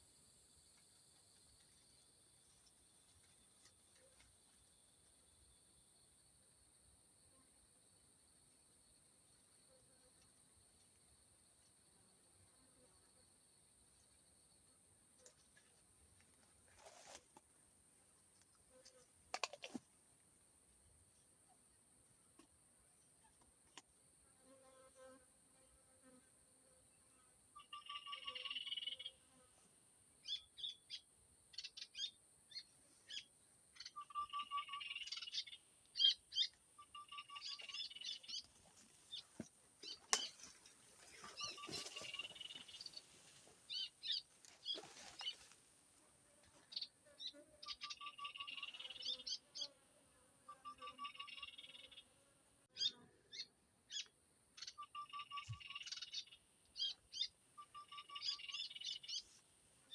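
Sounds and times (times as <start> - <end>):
songbird singing: 27.6 - 29.2, 30.2 - 45.6, 46.6 - 49.8, 50.5 - 52.1, 52.7 - 59.9
bird chirps: 30.2 - 38.5, 41.2 - 43.0, 46.7 - 49.7, 50.5 - 52.0, 52.8 - 59.3.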